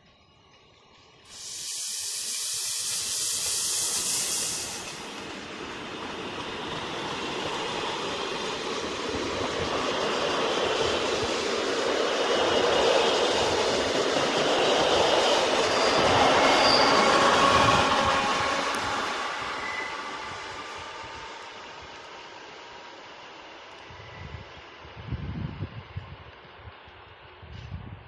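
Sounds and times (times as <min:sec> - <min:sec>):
train rumbling: 0:00.0 - 0:28.0
loud hiss: 0:01.2 - 0:05.8.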